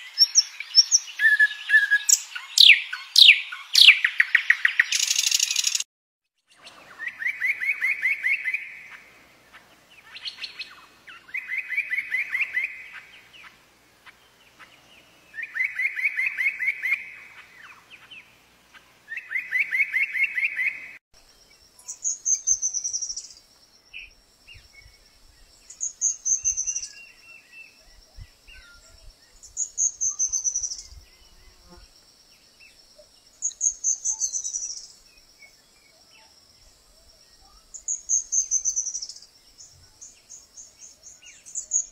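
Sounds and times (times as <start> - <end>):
songbird trilling: 0.1 - 5.8, 21.8 - 23.4, 25.7 - 31.0, 33.4 - 35.0, 37.4 - 39.3.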